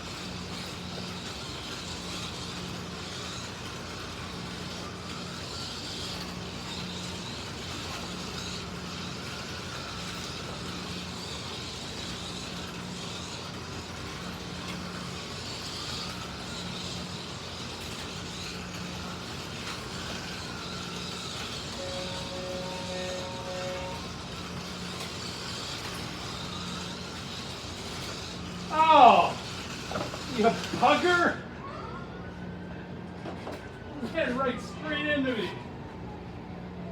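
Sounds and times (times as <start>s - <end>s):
slot car motors whining: 0.0s - 36.9s.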